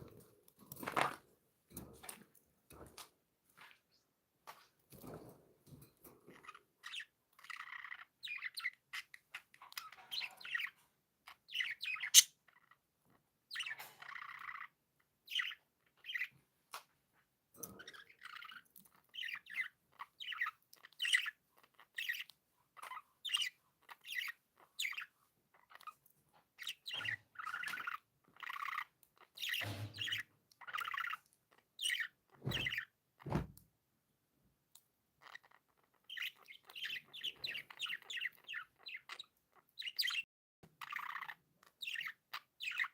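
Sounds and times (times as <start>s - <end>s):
budgerigars chirping and warbling: 6.2s - 16.4s, 17.6s - 33.5s, 35.2s - 40.2s, 40.8s - 42.9s.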